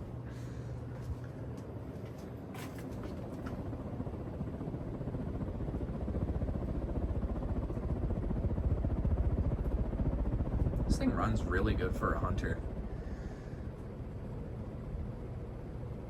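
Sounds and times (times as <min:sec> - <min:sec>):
ceiling fan blades whooshing: 0:00.0 - 0:16.0.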